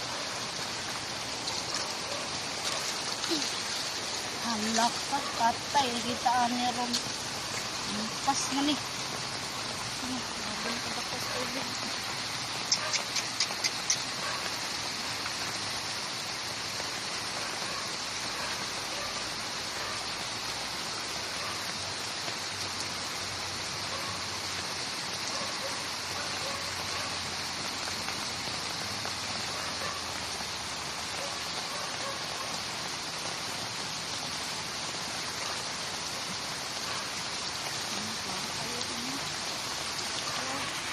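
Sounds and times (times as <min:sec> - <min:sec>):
water rushing: 0:00.0 - 0:40.9
sharp ticks: 0:12.7 - 0:14.1.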